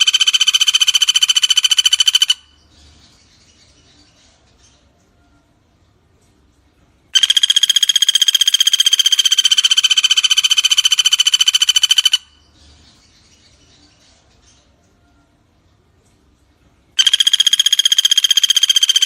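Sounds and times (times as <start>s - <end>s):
bird rapid trill: 0.0s - 2.7s, 7.2s - 12.6s, 17.0s - 19.0s.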